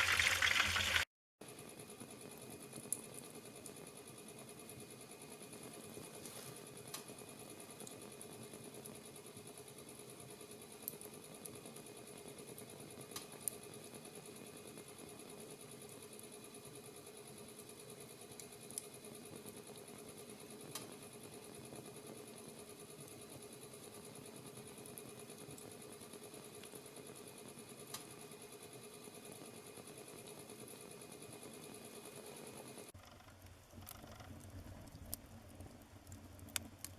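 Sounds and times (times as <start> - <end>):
burning wood crackling and popping: 0.0 - 1.0, 33.0 - 36.9
flames fluttering: 0.0 - 1.0, 33.0 - 36.9.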